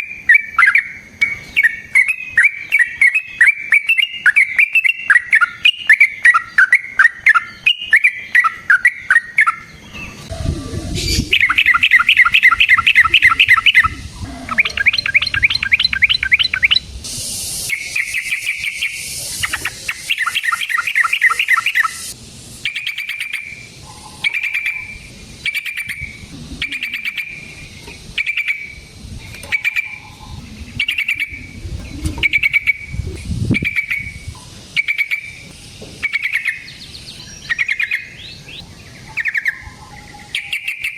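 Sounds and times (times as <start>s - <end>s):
bird singing chattering notes: 0.0s - 40.9s
short bird calls: 0.4s - 16.9s, 22.7s - 28.8s.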